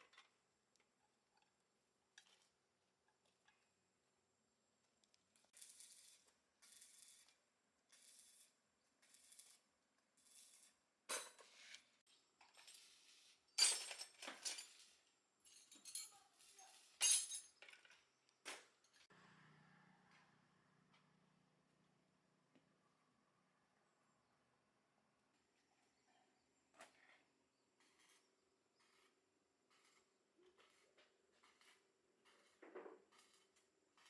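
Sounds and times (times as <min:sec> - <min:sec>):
scratchy strokes: 0:27.8 - 0:34.0.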